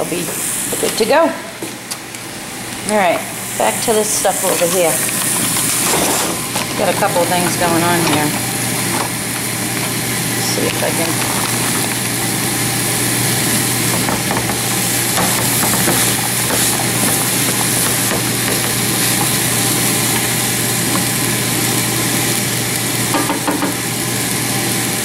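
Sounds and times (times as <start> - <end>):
steady low hum: 0.0 - 23.2
food sizzling in a frying pan: 0.0 - 25.0.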